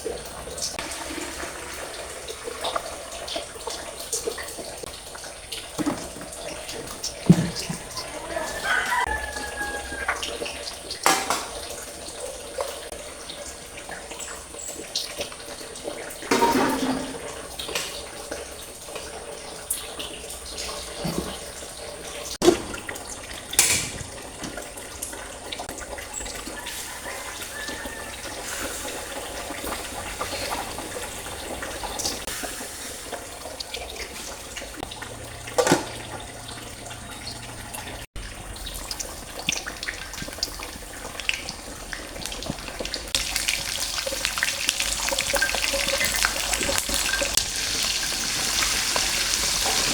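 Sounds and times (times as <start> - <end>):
water running from a tap: 0.0 - 49.9
objects knocking and clattering: 5.7 - 8.2, 11.0 - 11.6, 16.3 - 18.1, 20.8 - 21.7, 22.4 - 24.8, 35.5 - 36.4.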